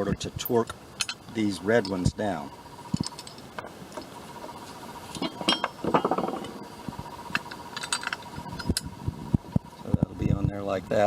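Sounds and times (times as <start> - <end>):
metal parts clinking: 1.0 - 2.1, 2.9 - 3.5, 5.1 - 6.6, 7.3 - 8.9.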